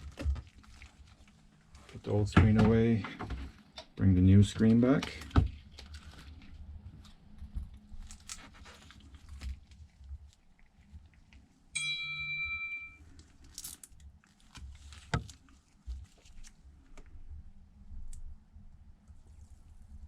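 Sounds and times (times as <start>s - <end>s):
steady high tone: 11.8s - 13.0s.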